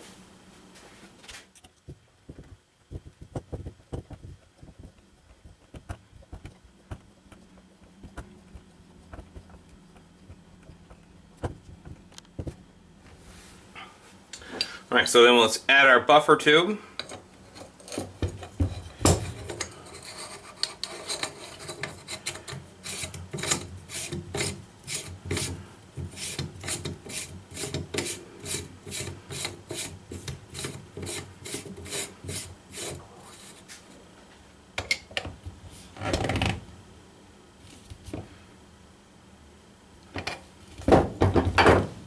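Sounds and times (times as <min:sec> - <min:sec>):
threaded tube scraping: 0:17.0 - 0:34.0
knocks: 0:40.9 - 0:41.9.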